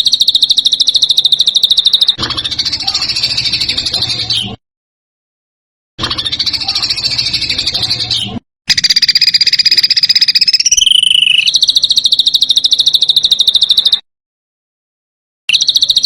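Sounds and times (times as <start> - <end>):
songbird harsh trill: 0.0 - 4.4, 6.2 - 14.0.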